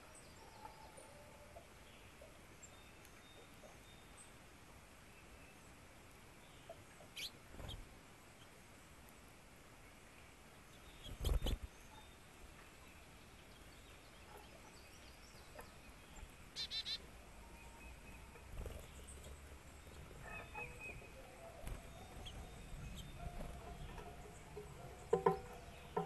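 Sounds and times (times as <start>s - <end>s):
bird chirping call: 14.3s - 26.0s.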